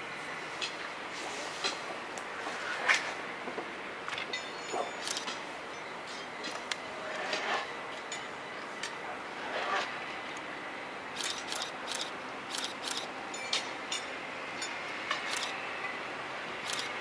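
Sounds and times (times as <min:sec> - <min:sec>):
train rumble and hiss: 0:00.0 - 0:17.0
sharp clicks and clanks: 0:05.0 - 0:05.4, 0:11.2 - 0:13.7, 0:15.1 - 0:15.6, 0:16.6 - 0:17.0.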